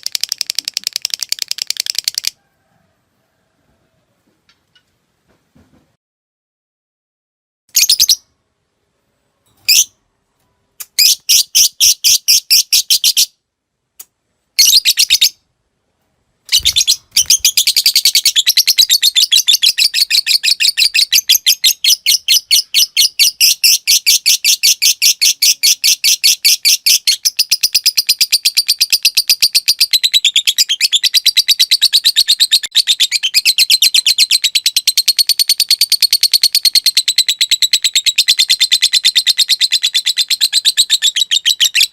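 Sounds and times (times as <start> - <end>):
lovebird chattering: 16.5 - 41.9.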